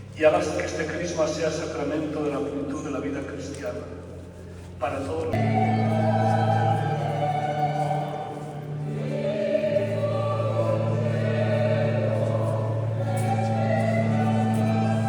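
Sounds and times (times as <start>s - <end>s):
held low notes: 0.0s - 15.0s
choir singing chant: 5.3s - 15.0s.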